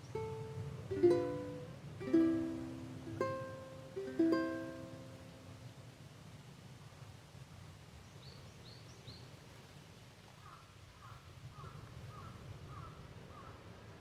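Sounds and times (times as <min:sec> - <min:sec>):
low outdoor rumble: 0:00.0 - 0:07.0.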